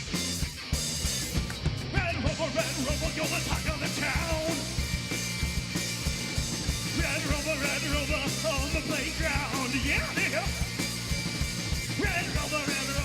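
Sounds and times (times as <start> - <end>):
rock band playing punk song: 0.0 - 13.0
person singing: 12.0 - 13.0.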